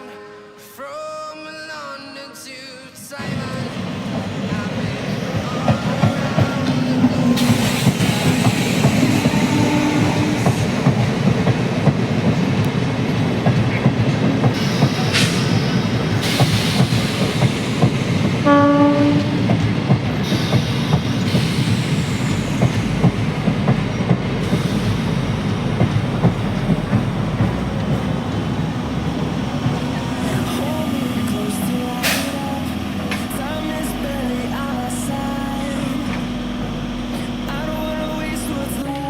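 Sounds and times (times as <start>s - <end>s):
train wheels clattering on rails: 3.2s - 39.0s
train horn blast: 6.3s - 11.1s, 18.3s - 19.7s.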